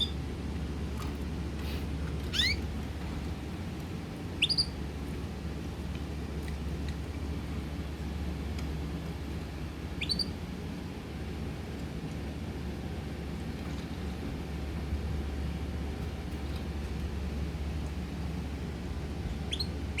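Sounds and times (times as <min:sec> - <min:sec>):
steady low hum: 0:00.0 - 0:20.0
bird chirping: 0:02.3 - 0:02.6, 0:04.4 - 0:04.7, 0:10.0 - 0:10.3, 0:19.5 - 0:20.0.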